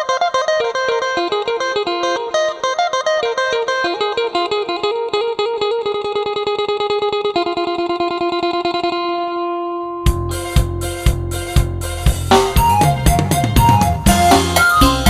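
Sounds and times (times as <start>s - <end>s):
plucked lute melody: 0.0s - 15.0s
drum kit with kick drum: 10.1s - 15.0s.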